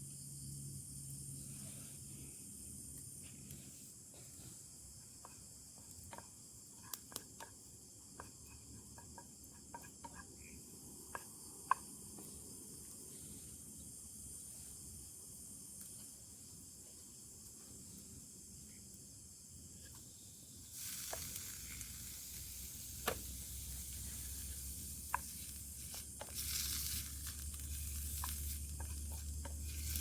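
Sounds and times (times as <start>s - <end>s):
high insect chorus: 0.0s - 30.0s
sharp clicks and ticks: 5.8s - 12.3s.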